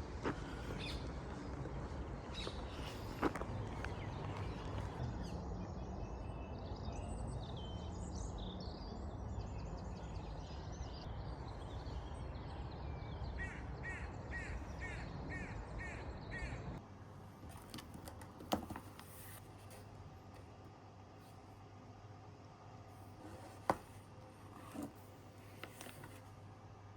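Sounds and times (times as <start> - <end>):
quick evenly spaced bird calls: 0.0 - 16.8
steady outdoor hum: 0.0 - 26.9.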